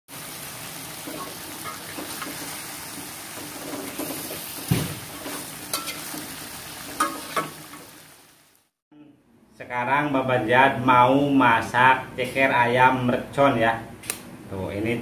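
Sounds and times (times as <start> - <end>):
food sizzling in a wok: 0.1 - 8.7
metal spatula scraping a pan: 1.0 - 7.9
knock: 4.7 - 5.0.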